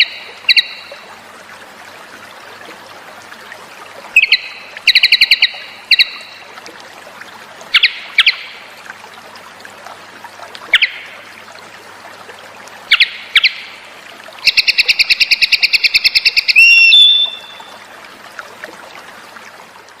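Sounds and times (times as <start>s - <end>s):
bird chirping and trilling: 0.0s - 0.9s, 4.2s - 6.4s, 7.7s - 8.5s, 10.7s - 11.1s, 12.9s - 13.7s, 14.4s - 17.7s
trickling water: 0.0s - 20.0s.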